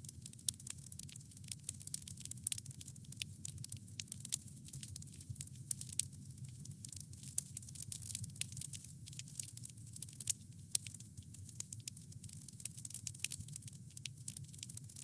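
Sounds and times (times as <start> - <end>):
campfire crackling and popping: 0.0 - 15.0
low rumble of burning: 0.0 - 15.0.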